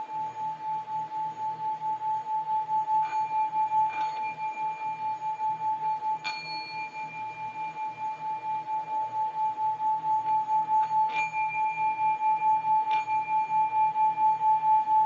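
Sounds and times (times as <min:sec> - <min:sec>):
singing bowl ringing: 0:00.0 - 0:15.0
singing bowl struck: 0:02.8 - 0:09.0, 0:10.1 - 0:14.7.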